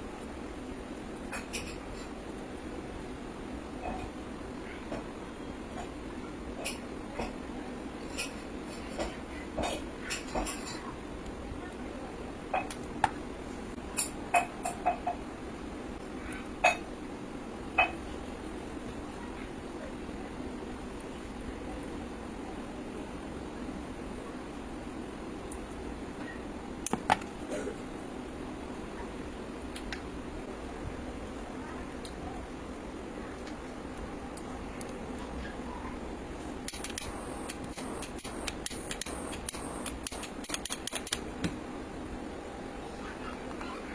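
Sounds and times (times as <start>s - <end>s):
steady low hum: 0.0s - 43.9s
hand tool clicking and snipping: 36.7s - 41.2s.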